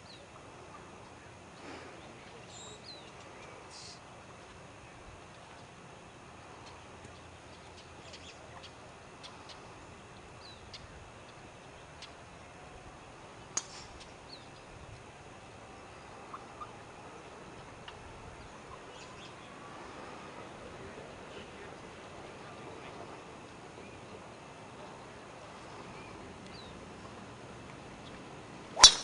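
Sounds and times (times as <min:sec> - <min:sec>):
small birds chirping: 0:00.0 - 0:04.0, 0:04.8 - 0:12.6, 0:13.3 - 0:14.8, 0:15.7 - 0:20.0, 0:23.7 - 0:27.2, 0:27.9 - 0:29.0
sharp click: 0:28.8 - 0:29.0.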